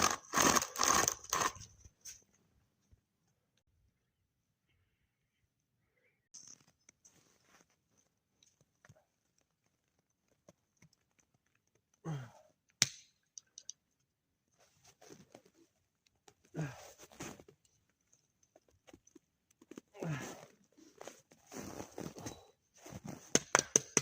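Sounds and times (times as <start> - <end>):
voiced sighs or grunts: 12.0 - 12.5, 16.5 - 17.0, 20.0 - 20.5
small clicks: 12.8 - 13.8.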